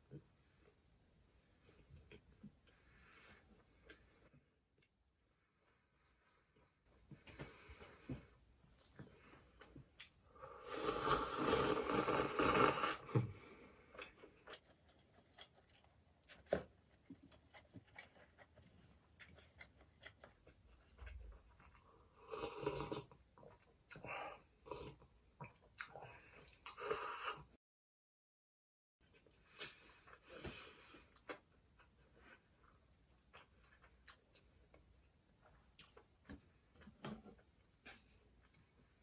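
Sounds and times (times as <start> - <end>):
chewing: 13.9 - 22.1.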